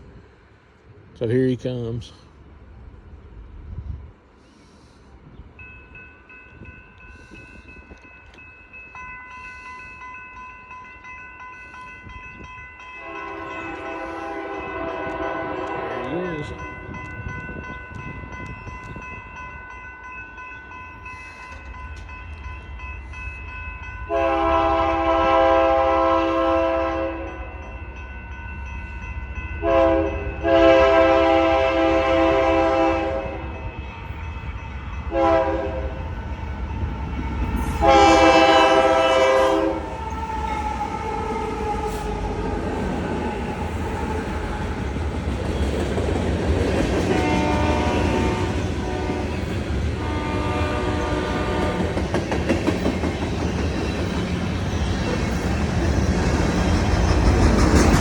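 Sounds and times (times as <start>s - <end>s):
locomotive air horn blasts: 13.0s - 16.1s, 24.1s - 27.4s, 29.6s - 33.5s, 35.1s - 36.0s, 37.8s - 39.9s, 47.2s - 51.8s
locomotive rumble: 29.6s - 58.0s
train clatter: 37.0s - 58.0s.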